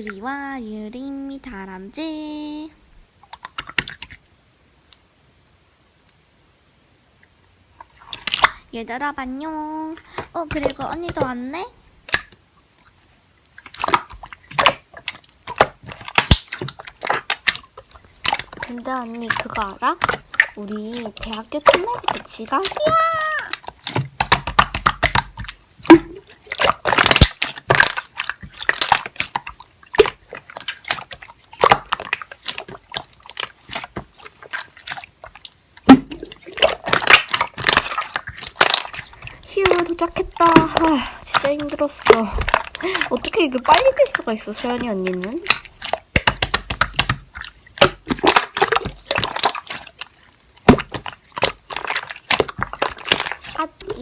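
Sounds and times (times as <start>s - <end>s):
slime squelching: 3.2s - 4.3s, 7.8s - 54.0s.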